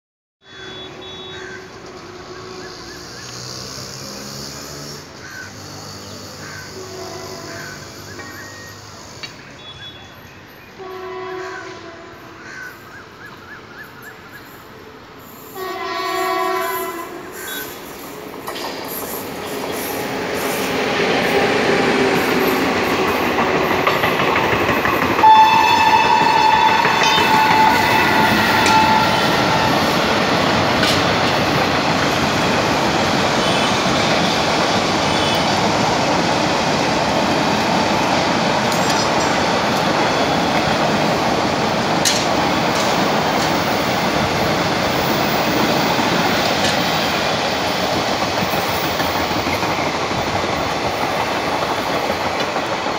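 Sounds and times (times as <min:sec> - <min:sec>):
electric locomotive horn blasts: 0:00.5 - 0:03.5, 0:06.5 - 0:08.7, 0:10.8 - 0:12.4, 0:15.6 - 0:17.7, 0:25.2 - 0:31.0, 0:33.3 - 0:35.7
train rushing past: 0:00.6 - 0:09.6, 0:14.4 - 0:52.9.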